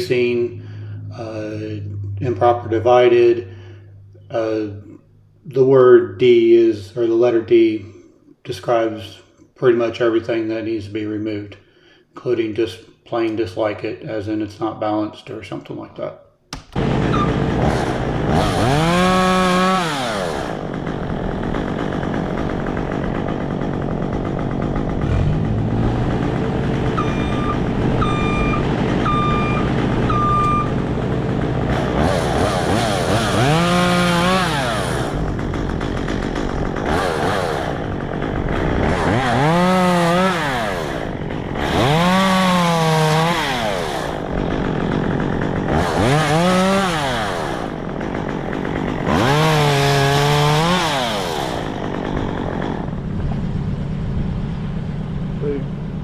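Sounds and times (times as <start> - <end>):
engine running: 0.0 - 4.3, 16.6 - 56.0
chainsaw revving and cutting: 16.7 - 54.0
short beeps: 27.0 - 30.7.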